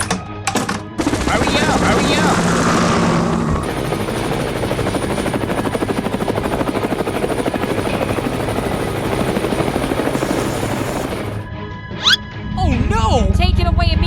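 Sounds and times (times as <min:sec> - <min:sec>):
helicopter rotor chopping: 0:01.0 - 0:11.5.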